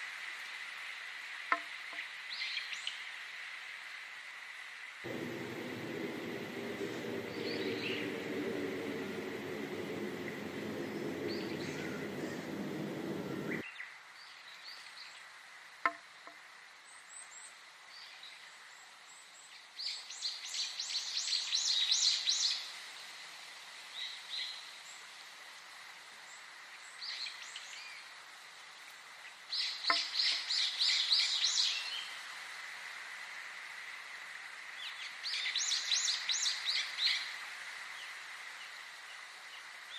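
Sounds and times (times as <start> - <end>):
low steady background: 5.1 - 13.6
songbird chirping: 5.1 - 13.6.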